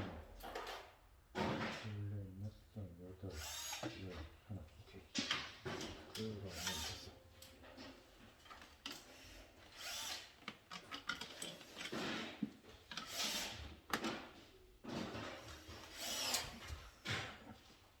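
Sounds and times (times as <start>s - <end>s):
hand tool noisy bursts: 15.9s - 16.6s.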